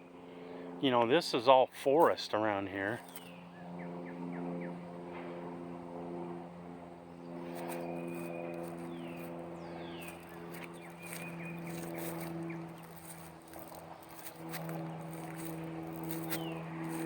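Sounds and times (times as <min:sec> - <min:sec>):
steady low hum: 0:00.0 - 0:17.0
young chickens peeping: 0:07.4 - 0:17.0.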